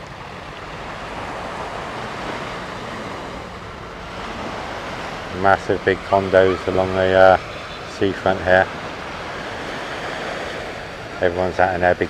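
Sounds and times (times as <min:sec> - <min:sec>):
surf washing onto beach: 0:00.0 - 0:12.0.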